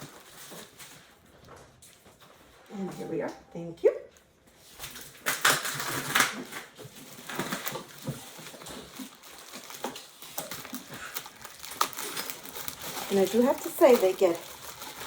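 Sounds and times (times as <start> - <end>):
tape and cardboard crackling: 0.0 - 2.6, 4.5 - 15.0
scissors cutting packing tape: 4.9 - 15.0.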